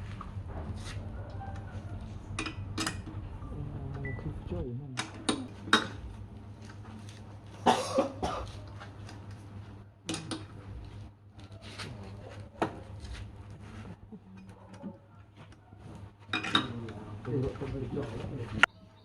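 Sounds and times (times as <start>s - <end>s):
low hum: 0.0s - 11.3s
person coughing: 7.6s - 8.6s.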